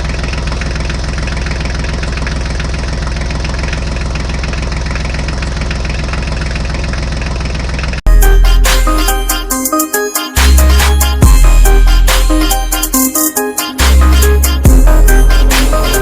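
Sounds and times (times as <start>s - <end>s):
tractor engine idling: 0.0s - 9.4s.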